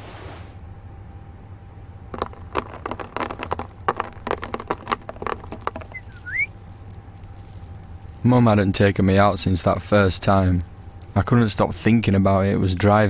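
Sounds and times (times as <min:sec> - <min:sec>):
low steady hum: 0:00.0 - 0:13.0
bird tapping and scratching: 0:02.1 - 0:11.2
bird chirp: 0:05.8 - 0:06.6.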